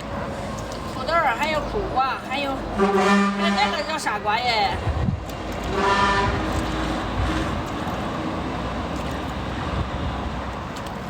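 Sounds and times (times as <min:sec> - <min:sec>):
traffic rumble: 0:00.0 - 0:11.0
short horn tone: 0:05.7 - 0:06.5.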